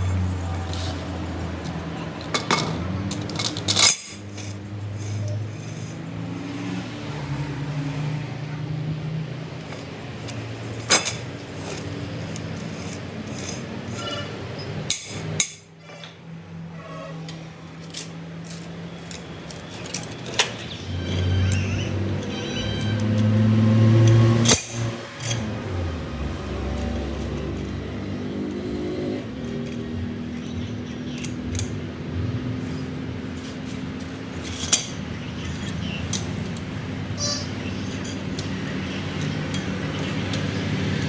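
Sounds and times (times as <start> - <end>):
metal parts clanking: 0.0 - 6.0, 9.6 - 16.2, 17.3 - 28.0, 32.6 - 41.0
shop machinery hum: 0.0 - 41.0.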